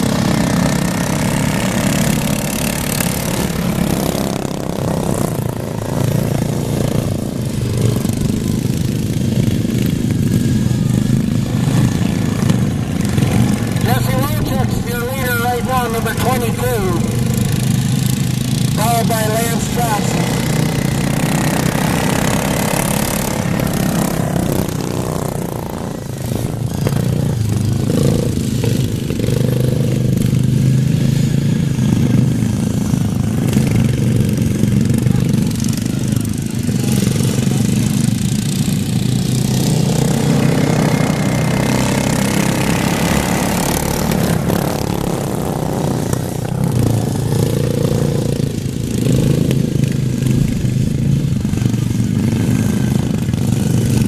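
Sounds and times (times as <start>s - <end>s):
lawn mower engines running: 0.0s - 54.0s.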